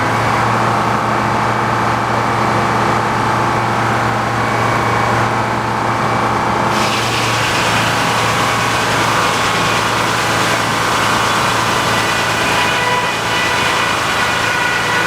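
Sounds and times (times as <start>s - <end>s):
saw blade cutting log: 6.7s - 15.0s
tractor engine running: 6.7s - 15.0s.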